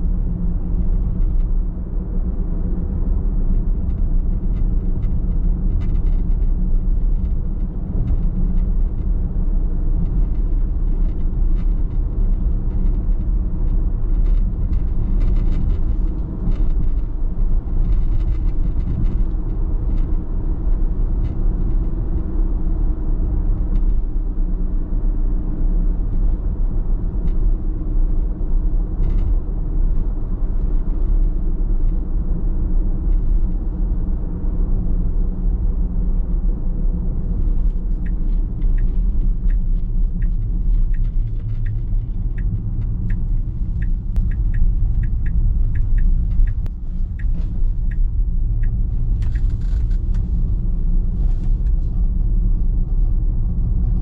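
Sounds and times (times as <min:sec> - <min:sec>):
car tyres and engine rumble: 0:00.0 - 0:54.0
faint light ticks: 0:37.2 - 0:50.5.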